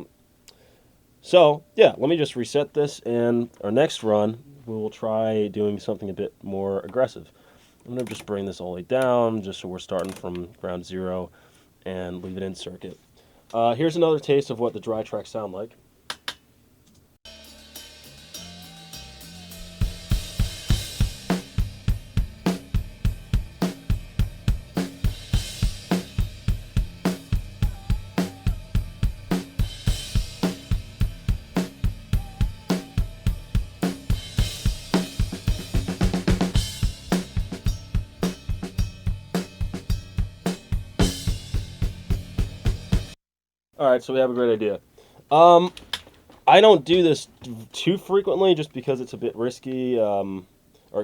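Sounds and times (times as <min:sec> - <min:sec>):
crash cymbal: 0:17.3 - 0:36.0
drum kit beat: 0:17.3 - 0:43.2.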